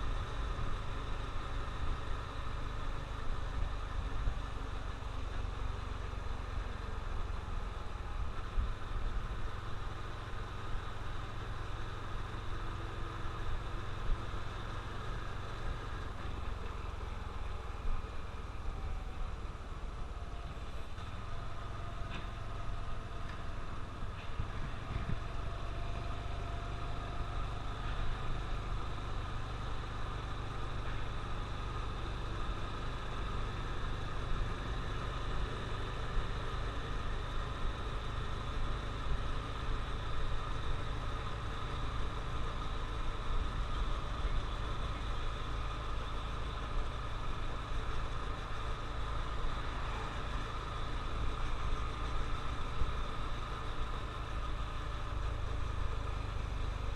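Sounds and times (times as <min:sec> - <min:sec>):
motorcycle engine running: 0:00.0 - 0:56.9
wind rumble on microphone: 0:23.6 - 0:25.7.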